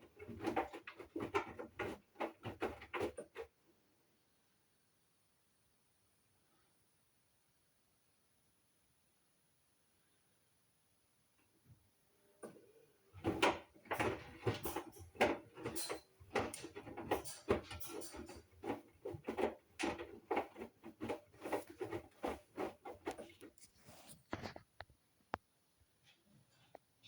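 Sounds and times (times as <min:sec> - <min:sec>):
wet laundry tumbling and sloshing: 0:00.0 - 0:03.4, 0:13.2 - 0:24.1
washing machine drum turning: 0:13.2 - 0:23.5.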